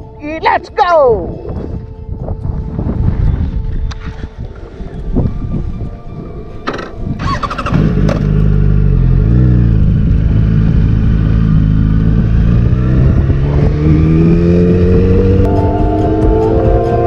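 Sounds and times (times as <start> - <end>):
motorcycle engine revving: 6.7 - 17.0.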